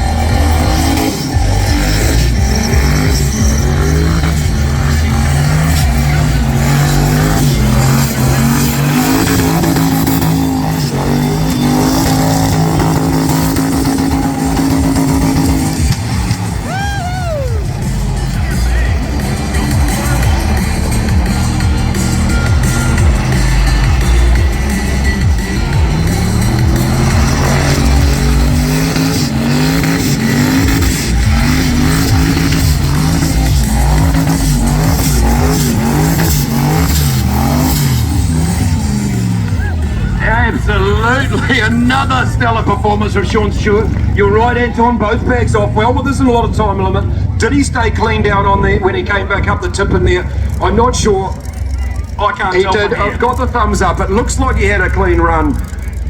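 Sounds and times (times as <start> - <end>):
engine at high revs: 0.0 - 56.0
tyres spinning: 0.0 - 56.0.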